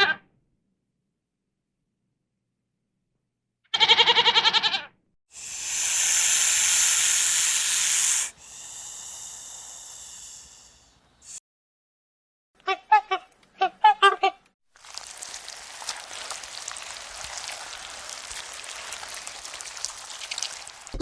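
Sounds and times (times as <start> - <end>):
quavering animal bleat: 3.7 - 4.9
loud hiss: 5.4 - 11.4.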